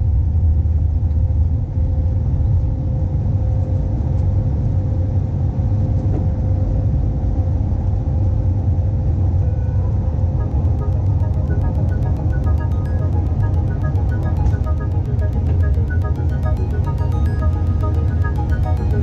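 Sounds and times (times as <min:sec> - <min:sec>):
background music: 0:10.3 - 0:19.0.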